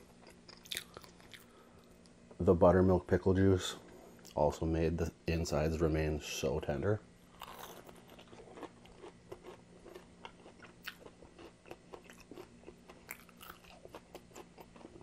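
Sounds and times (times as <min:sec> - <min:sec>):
chewing crispy fried chicken: 0:00.0 - 0:02.1, 0:07.3 - 0:15.0.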